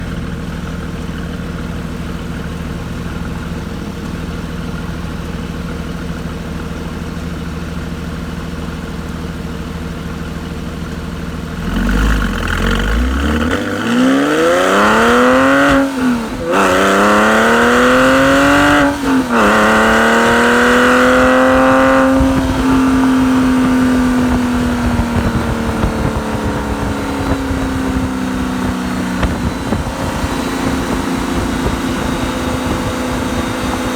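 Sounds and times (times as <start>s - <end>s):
car exhaust revving: 11.0s - 33.9s.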